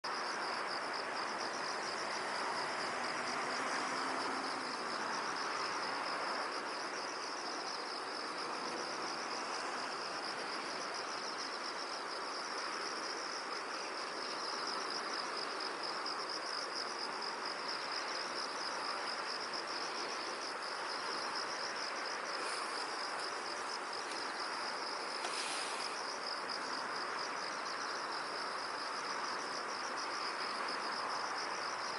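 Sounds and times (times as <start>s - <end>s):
insects pulsing chorus: 0.1s - 31.9s
ambient hiss: 0.3s - 31.8s.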